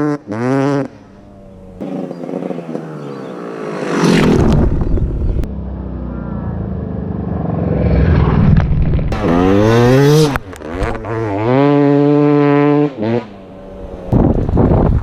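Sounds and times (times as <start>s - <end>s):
dirt bike engine revving: 0.0s - 5.4s, 9.1s - 14.9s.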